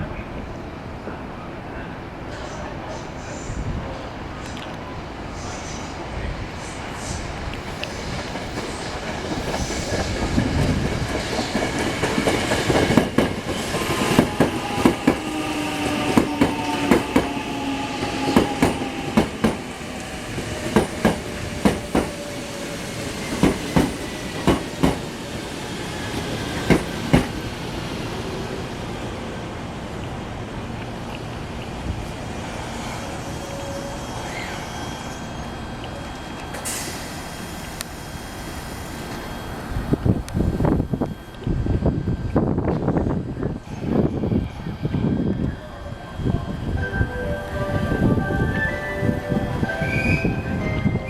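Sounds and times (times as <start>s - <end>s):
train running rumble: 6.2s - 27.9s
train wheels clacking over rail joints: 23.3s - 25.0s, 26.6s - 27.4s.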